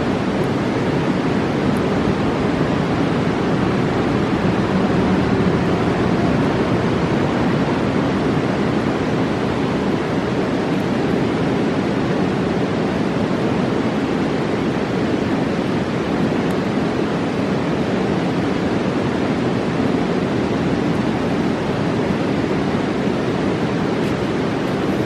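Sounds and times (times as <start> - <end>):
river roaring: 0.0 - 25.0.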